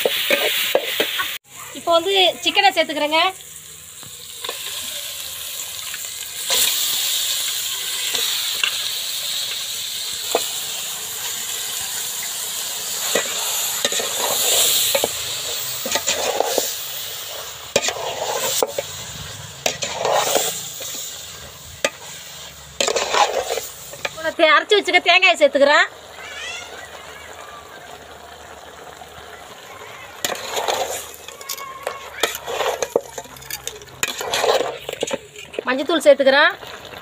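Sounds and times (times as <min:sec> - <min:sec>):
chicken sizzling in hot oil: 0:00.0 - 0:37.0
metal ladle scraping pot: 0:12.0 - 0:24.2, 0:30.1 - 0:35.9.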